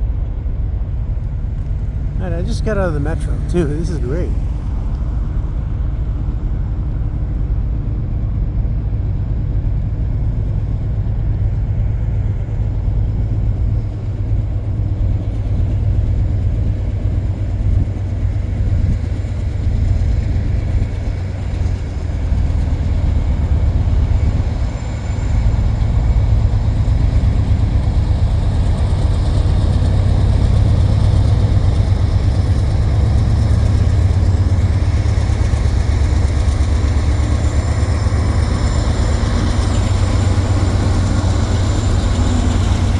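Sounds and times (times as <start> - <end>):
diesel locomotives rumbling: 21.6 - 42.9.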